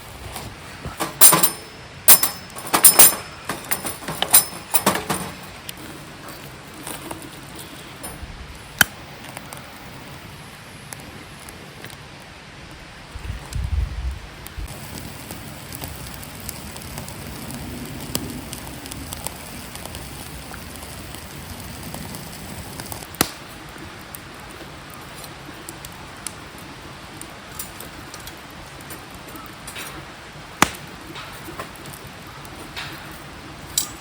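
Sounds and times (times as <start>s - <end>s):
campfire crackling and popping: 0.0s - 34.0s
sharp wood snaps: 22.8s - 23.5s, 30.6s - 32.0s.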